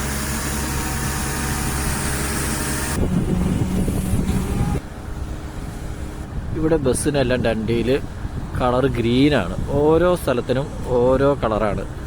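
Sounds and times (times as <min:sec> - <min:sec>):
road noise hiss: 0:00.0 - 0:12.0
vehicle engine hum: 0:00.0 - 0:12.0.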